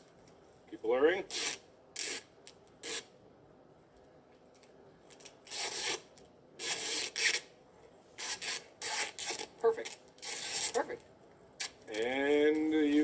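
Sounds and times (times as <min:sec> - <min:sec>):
rasping rubbing strokes: 0:01.3 - 0:03.1, 0:05.5 - 0:06.0, 0:06.6 - 0:07.5, 0:08.2 - 0:09.5, 0:10.2 - 0:11.0.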